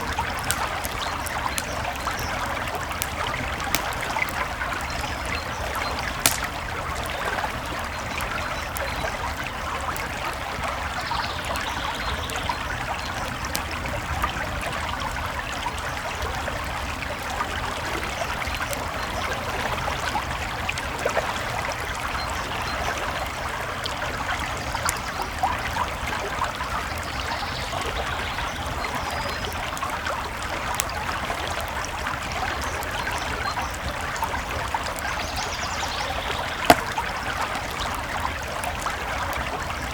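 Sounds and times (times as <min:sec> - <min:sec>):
campfire crackling and popping: 0:00.0 - 0:14.6, 0:35.8 - 0:39.9.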